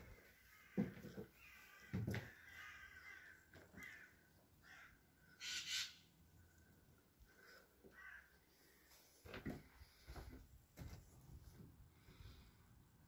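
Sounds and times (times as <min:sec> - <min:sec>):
faint bird calls: 0:00.2 - 0:06.7.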